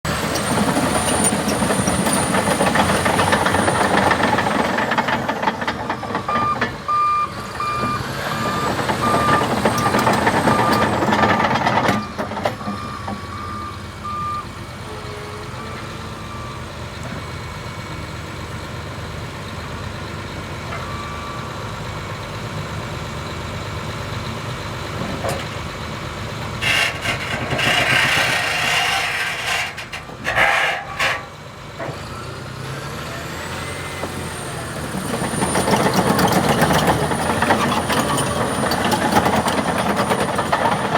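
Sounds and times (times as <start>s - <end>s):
dozer diesel engine under load: 0.0s - 40.9s
backup alarm beeping: 6.0s - 11.0s.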